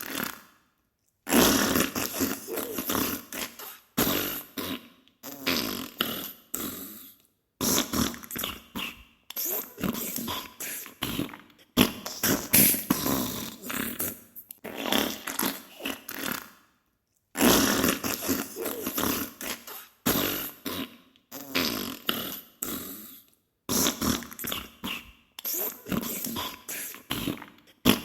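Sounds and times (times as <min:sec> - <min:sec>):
fart bursts: 0:01.3 - 0:16.6, 0:17.4 - 0:23.0, 0:23.7 - 0:28.0.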